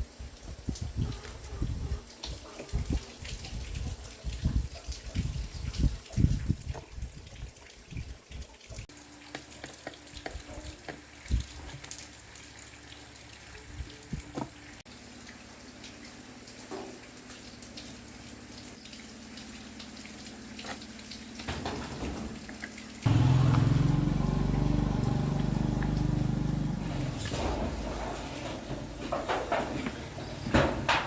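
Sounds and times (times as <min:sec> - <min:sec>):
motor running loud: 0:23.1 - 0:27.4.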